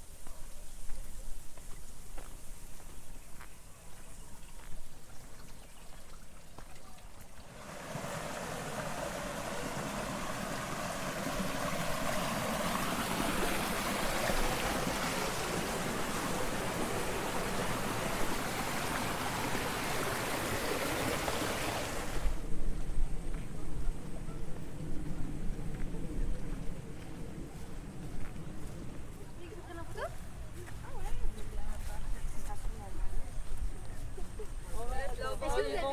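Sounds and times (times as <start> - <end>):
water rushing in a channel: 5.1 - 22.5.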